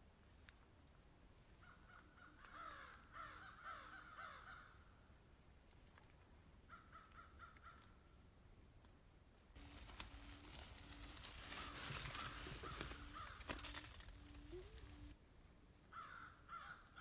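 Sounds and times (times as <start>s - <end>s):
birds calling: 9.6s - 15.1s.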